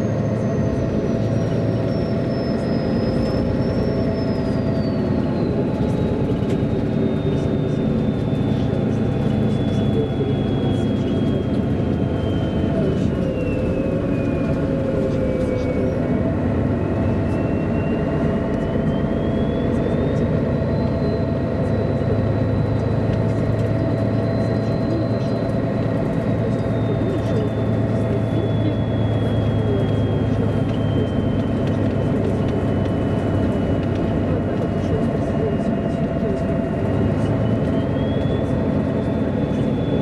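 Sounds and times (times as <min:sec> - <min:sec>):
bus diesel engine running: 0:00.0 - 0:40.0.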